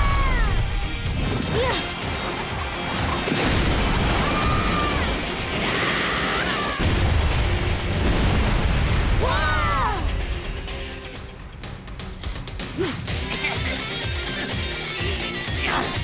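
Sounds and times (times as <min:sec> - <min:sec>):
background music: 0:00.0 - 0:16.0
rumbling blast with booms: 0:06.8 - 0:10.6.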